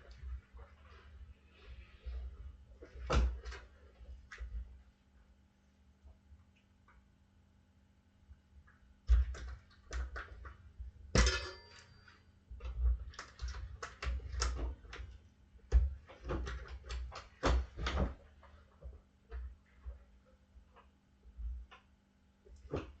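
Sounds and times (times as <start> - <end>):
metal tools clanking on wheel rim: 11.2 - 12.0.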